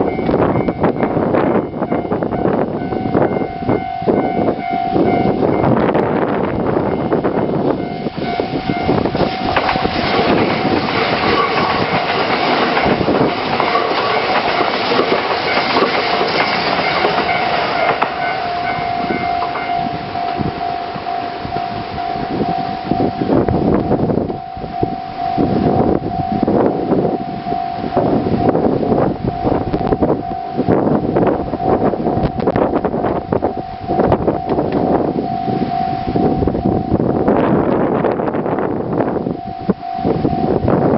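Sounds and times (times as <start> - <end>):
steady high-pitched tone: 0.0 - 40.9
train wheels clattering over joints: 7.6 - 21.7.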